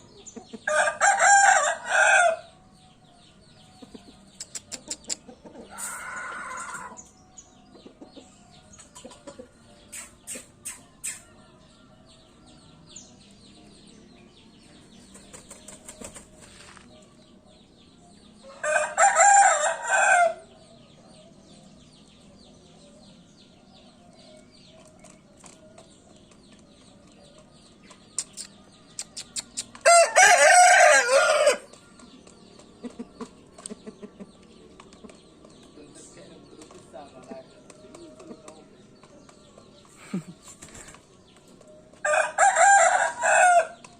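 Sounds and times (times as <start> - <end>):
rooster crowing: 0.7 - 2.4, 5.7 - 7.0, 18.6 - 20.4, 29.8 - 31.7, 42.0 - 43.8.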